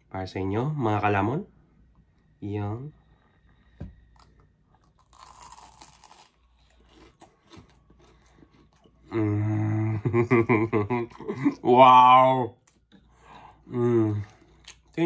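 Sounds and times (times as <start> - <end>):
crunch of biting crisp crust: 4.2 - 8.8
man humming mmm: 9.1 - 10.1.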